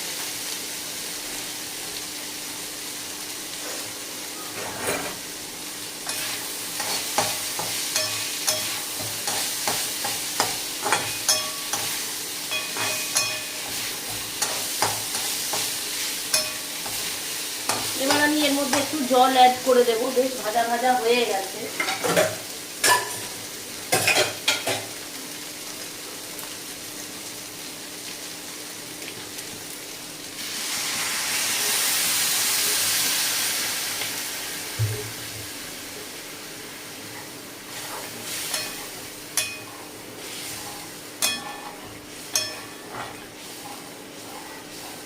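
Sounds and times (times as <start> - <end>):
loud sizzle of water in oil: 0.0 - 45.0
meat frying in a pan: 0.0 - 45.0
metal spatula scraping pan: 6.0 - 18.9.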